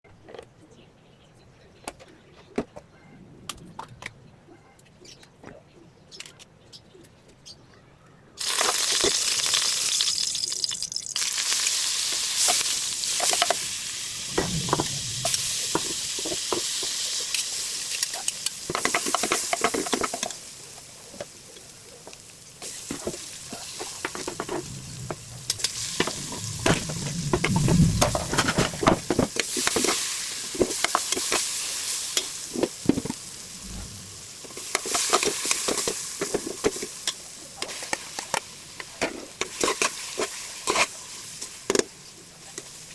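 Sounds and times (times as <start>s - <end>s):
food sizzling in hot oil: 8.4s - 38.8s.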